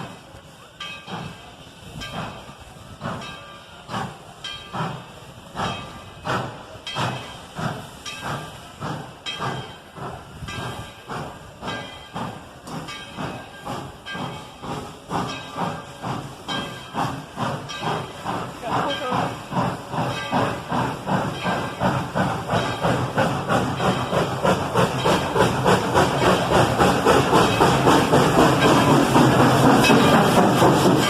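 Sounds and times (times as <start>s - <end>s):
steam hissing: 0.0s - 31.0s
steam locomotive chuffing: 0.0s - 31.0s.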